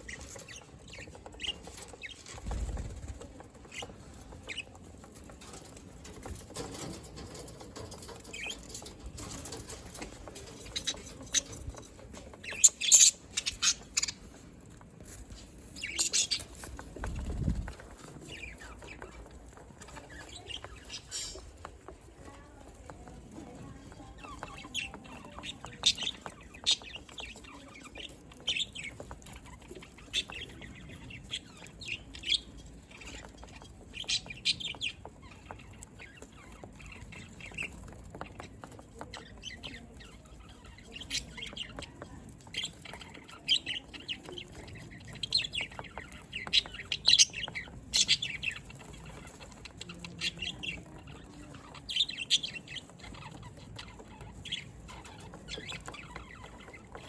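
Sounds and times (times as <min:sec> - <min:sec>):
budgerigars chirping: 0:08.0 - 0:14.4, 0:15.3 - 0:21.5, 0:24.4 - 0:57.0.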